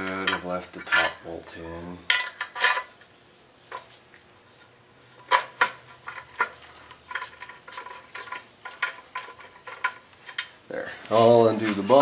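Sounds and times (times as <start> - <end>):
hand tools clinking against metal: 0.0 - 1.3.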